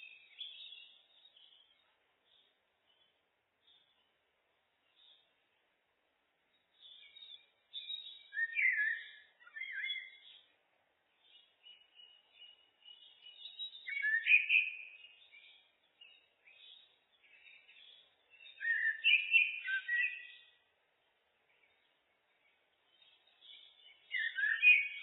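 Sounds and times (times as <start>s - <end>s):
blackbird singing: 0.0s - 4.2s, 4.8s - 5.6s, 6.5s - 20.7s, 21.4s - 25.0s.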